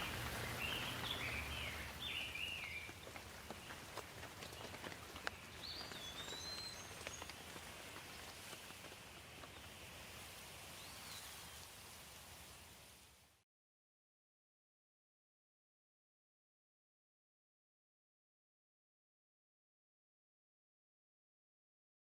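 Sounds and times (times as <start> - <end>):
bird chirps: 0.0 - 2.9, 5.5 - 7.3
water drips: 0.0 - 12.4
steady rain: 0.0 - 13.4.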